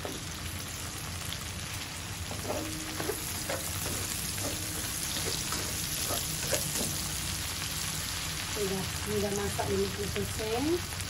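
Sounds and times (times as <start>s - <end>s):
vegetables sizzling in hot oil: 0.0s - 11.0s
spatula scraping and tapping pan: 2.3s - 7.2s.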